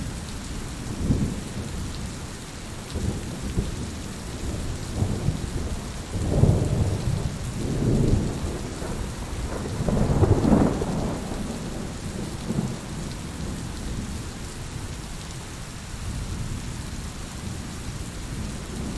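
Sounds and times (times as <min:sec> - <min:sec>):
steady rain: 0:00.0 - 0:18.9
rolling thunder: 0:03.0 - 0:13.6.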